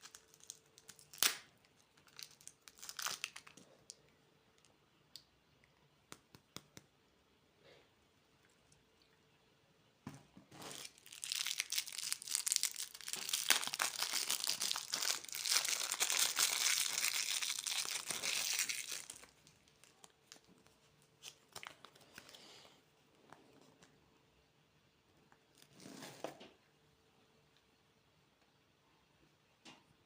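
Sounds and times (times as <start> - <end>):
plastic wrapper crinkling: 0.0 - 4.0, 10.5 - 22.5.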